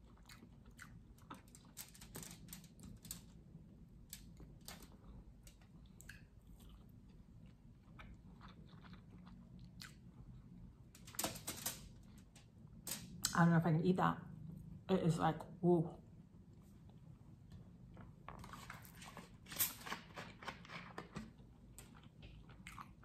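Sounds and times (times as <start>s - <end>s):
chewing crisp cucumber: 0.0s - 1.8s, 4.9s - 10.8s, 19.8s - 23.0s.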